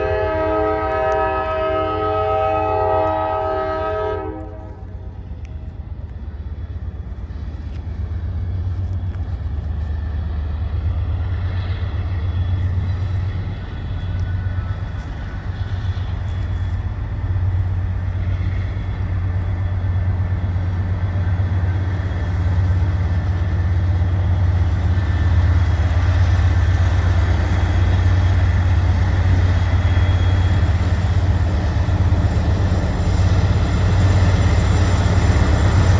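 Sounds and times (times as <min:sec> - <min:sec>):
locomotive air horn: 0:00.0 - 0:05.0.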